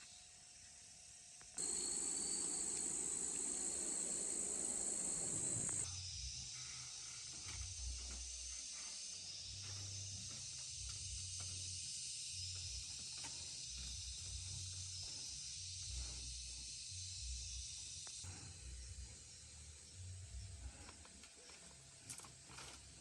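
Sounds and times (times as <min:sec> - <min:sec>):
high-pitched hiss: 0:01.6 - 0:07.3.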